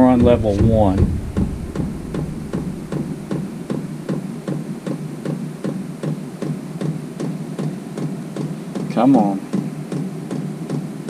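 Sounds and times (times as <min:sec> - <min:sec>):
fuel pump ticking: 0:00.0 - 0:04.3
low steady hum: 0:00.0 - 0:04.8.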